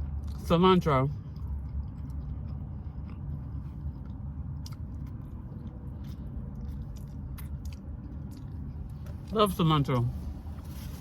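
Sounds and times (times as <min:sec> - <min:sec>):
chewing soft taco: 0:00.0 - 0:11.0
steady low rumble: 0:00.0 - 0:11.0.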